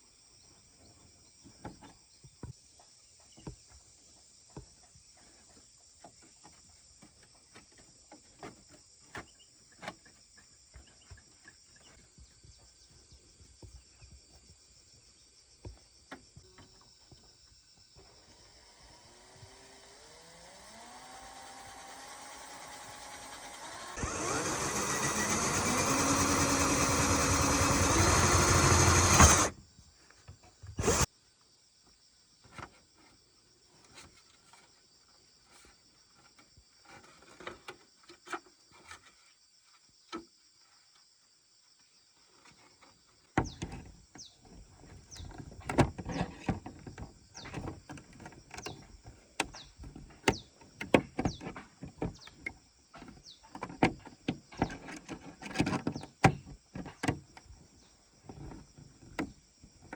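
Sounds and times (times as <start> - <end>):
small motor running loudly: 18.2 - 29.6, 30.8 - 31.1.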